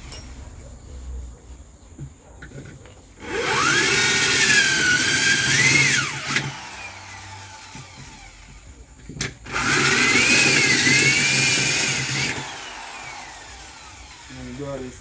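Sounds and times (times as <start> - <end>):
electric power tool motor whine: 3.2 - 15.0.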